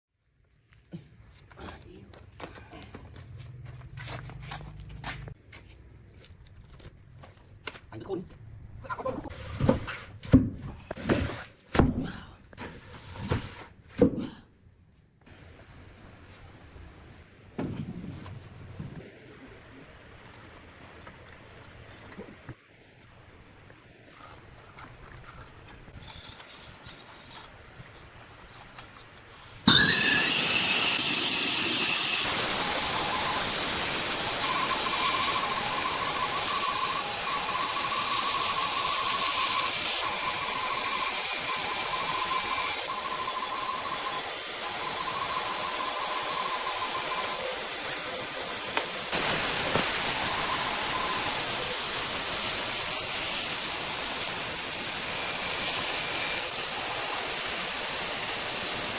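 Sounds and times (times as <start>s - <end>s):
electric power tool whining: 29.7s - 58.9s.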